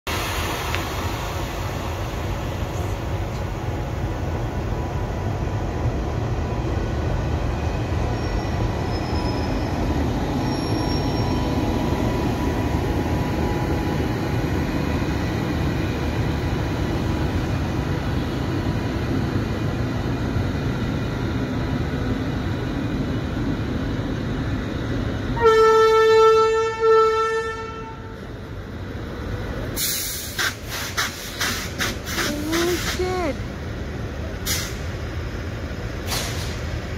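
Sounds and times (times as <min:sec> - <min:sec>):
train rumbling past: 0:00.1 - 0:36.9
train horn blasts: 0:25.4 - 0:28.2.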